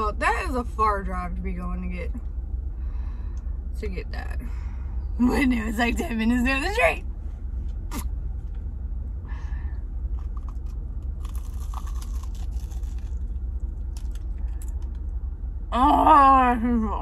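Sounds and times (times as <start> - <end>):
low rumble: 0.0 - 17.0
crunching and chewing: 10.0 - 15.2.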